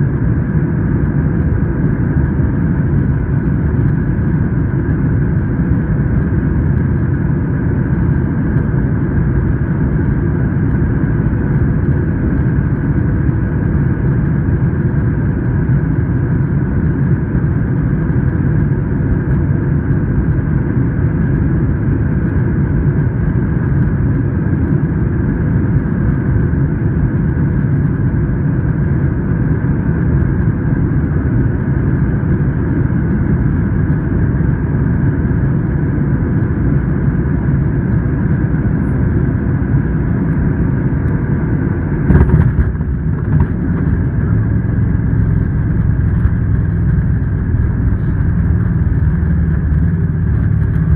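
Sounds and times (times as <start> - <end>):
airliner cabin rumble: 0.0 - 50.9.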